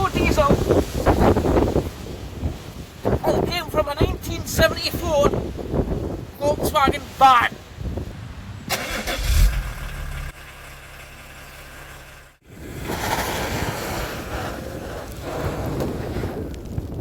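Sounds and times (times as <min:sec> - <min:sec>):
broad rushing noise: 0:07.8 - 0:10.4
diesel engine idling: 0:08.7 - 0:12.4.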